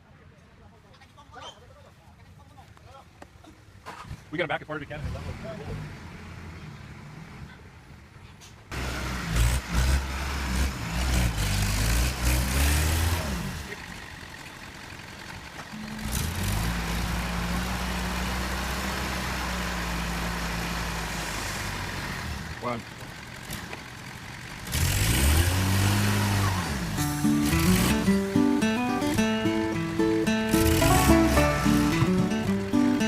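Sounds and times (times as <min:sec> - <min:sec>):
heavy truck engine revving: 0:08.7 - 0:33.0.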